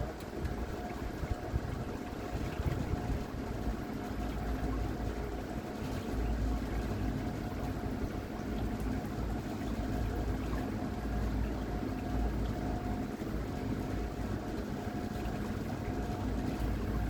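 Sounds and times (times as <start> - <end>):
wind rumbling on microphone: 0.0 - 3.8
water washing along a hull: 0.0 - 17.0.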